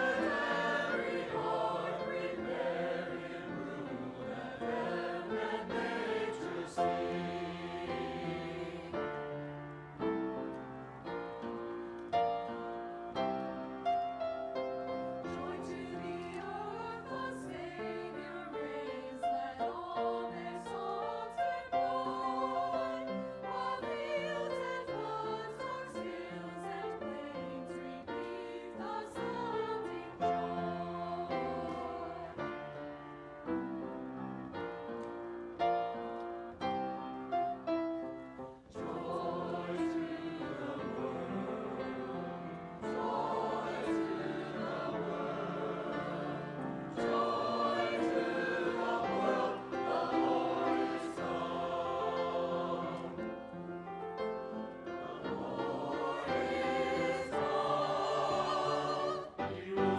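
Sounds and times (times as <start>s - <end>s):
choir singing: 0.0s - 59.9s
piano accompaniment: 0.0s - 59.9s.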